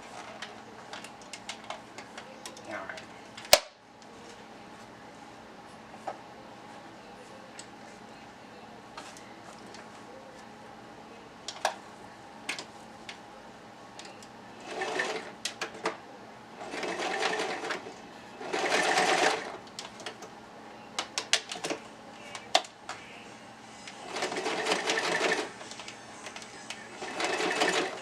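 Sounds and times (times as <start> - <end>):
sewing machine stitching: 14.6 - 15.3, 16.6 - 17.8, 18.4 - 19.6, 24.1 - 25.5, 27.0 - 28.0.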